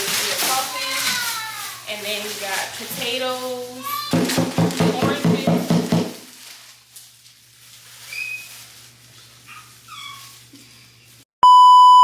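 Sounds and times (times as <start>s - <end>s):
censor bleep tone: 11.4s - 12.0s.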